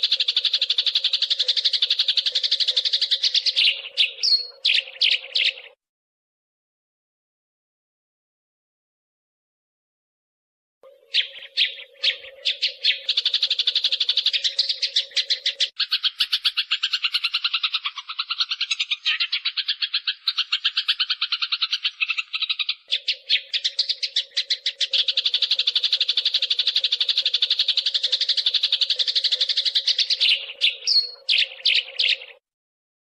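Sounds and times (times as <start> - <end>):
sparrows chattering chirps: 0.0 - 5.8, 10.9 - 32.4.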